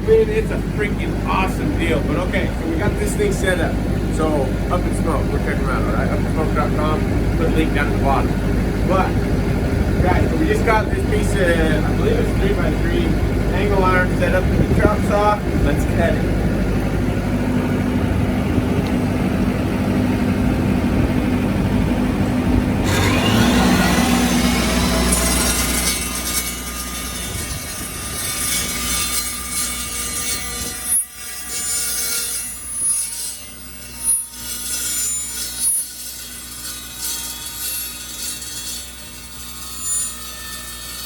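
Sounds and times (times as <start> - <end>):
chop saw motor humming: 0.0 - 41.0
blade screeching on steel: 22.8 - 41.0.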